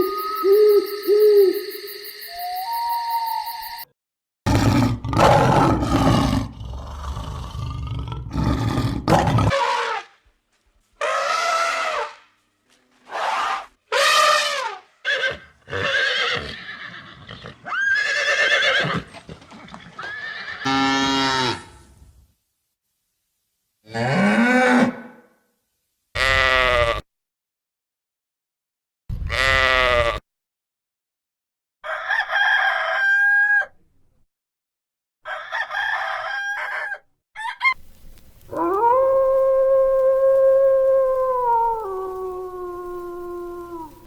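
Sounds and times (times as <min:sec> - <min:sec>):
rough low animal call: 0:37.4 - 0:44.0
pitched animal calls: 0:38.5 - 0:44.0.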